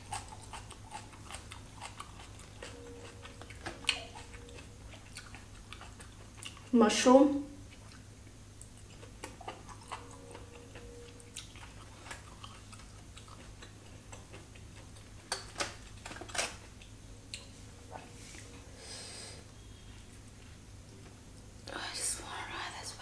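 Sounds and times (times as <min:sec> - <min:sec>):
mouth chewing wetly: 0:00.0 - 0:06.8, 0:07.7 - 0:15.1
food crackling: 0:00.0 - 0:18.6.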